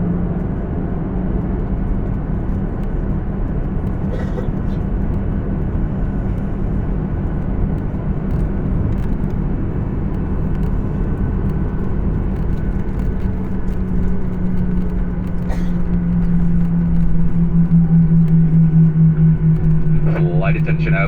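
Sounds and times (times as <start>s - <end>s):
jet engine hum in cabin: 0.0s - 21.0s.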